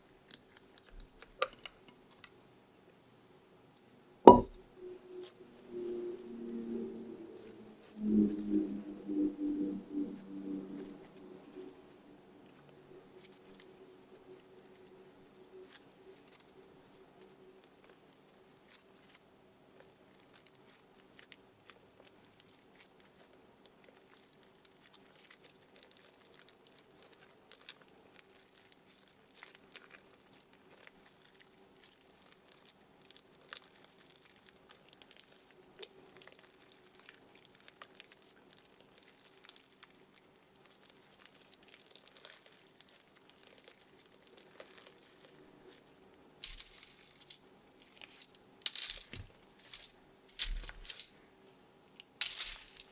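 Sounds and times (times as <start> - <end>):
beads crackling in slime: 0.0 - 2.3, 19.8 - 51.3, 51.9 - 52.9
faint steady hum: 0.0 - 52.9.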